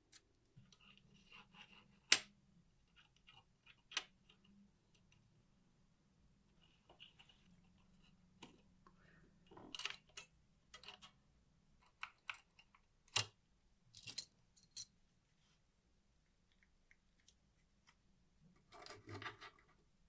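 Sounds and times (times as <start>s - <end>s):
small metal parts clinking: 14.0s - 14.9s.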